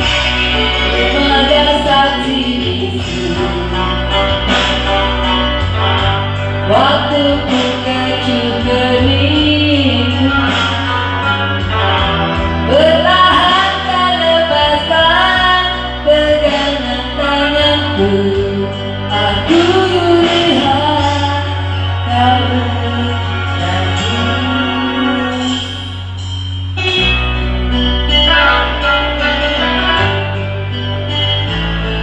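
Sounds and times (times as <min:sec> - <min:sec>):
person singing: 0:01.0 - 0:05.0, 0:22.4 - 0:27.5
instrumental accompaniment: 0:18.7 - 0:32.0.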